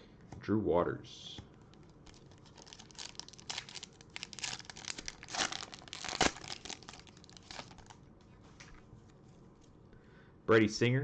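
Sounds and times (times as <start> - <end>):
foil wrapper crinkling and tearing: 1.8 - 8.0.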